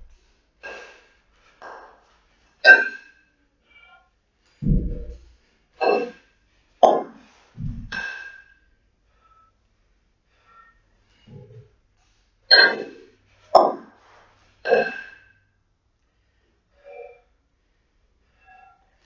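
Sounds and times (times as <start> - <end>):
person breathing forcefully: 4.6 - 5.2, 7.0 - 8.0.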